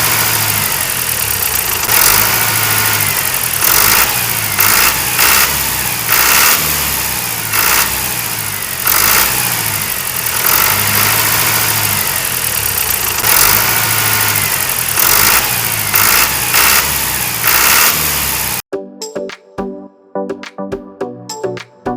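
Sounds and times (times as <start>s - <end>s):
engine running with surges: 0.0s - 18.6s.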